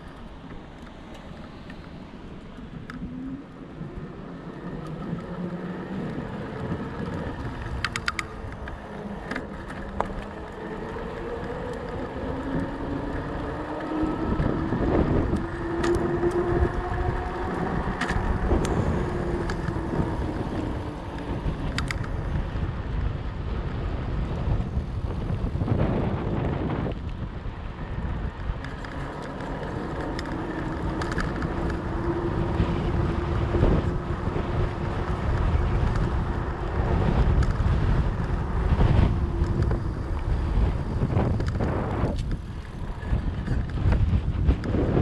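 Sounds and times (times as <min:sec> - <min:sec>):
bike tyres rumbling and humming: 0:00.0 - 0:45.0
wind on microphone: 0:01.8 - 0:45.0
sharp clicks: 0:07.0 - 0:10.3.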